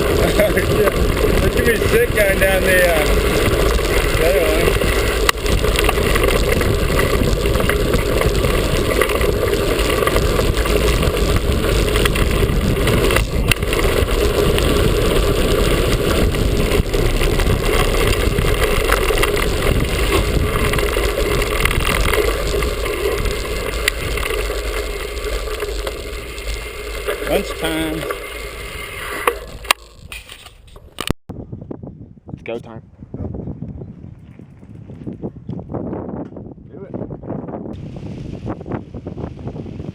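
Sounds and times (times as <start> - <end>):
bike frame rattle: 0.0 - 31.1
bike tyre noise: 0.0 - 31.2, 33.4 - 39.9
wind buffeting microphone: 0.0 - 39.9.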